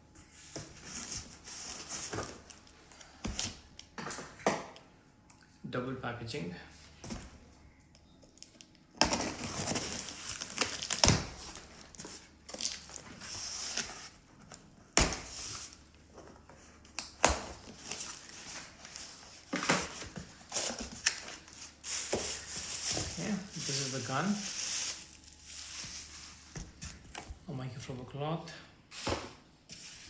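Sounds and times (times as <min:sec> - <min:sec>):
packaging crinkling and rustling: 0:08.3 - 0:14.6, 0:17.5 - 0:27.2
packaging ripping: 0:09.1 - 0:13.9.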